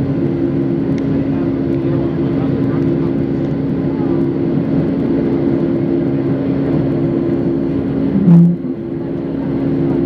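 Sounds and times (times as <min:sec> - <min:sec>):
jet engine hum: 0:00.0 - 0:10.0
low tone with click: 0:08.1 - 0:09.3.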